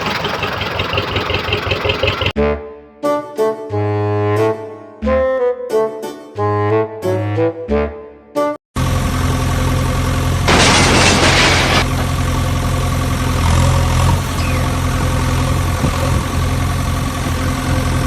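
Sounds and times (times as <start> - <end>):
engine idling: 0.0 - 2.4, 8.8 - 18.0.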